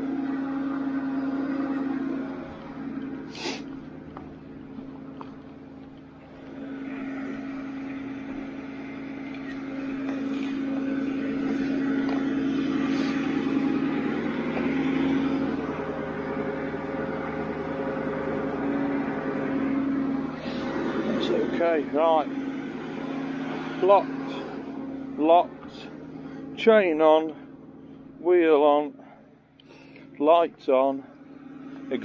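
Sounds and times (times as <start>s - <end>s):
truck engine droning hum: 0.0s - 32.0s.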